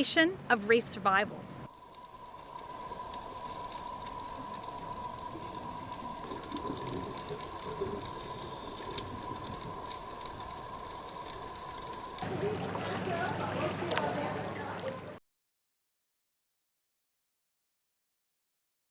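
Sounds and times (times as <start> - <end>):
faint high hum: 0.0 - 12.2
underwater water noise: 1.4 - 12.3.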